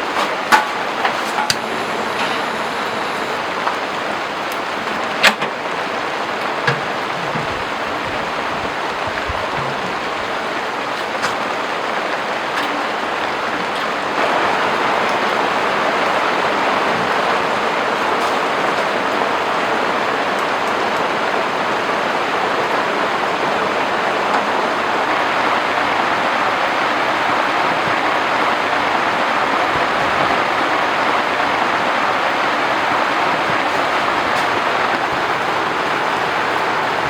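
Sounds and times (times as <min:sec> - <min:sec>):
heavy rain hissing: 0:00.0 - 0:37.0.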